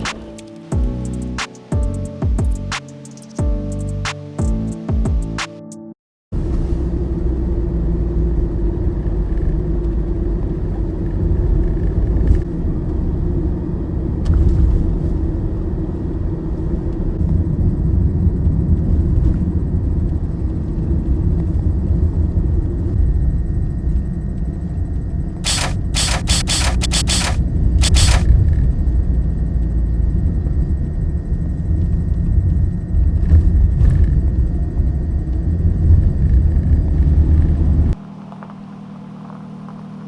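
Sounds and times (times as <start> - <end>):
music: 0.0 - 6.0
sharp clicks or knocks: 25.5 - 28.3.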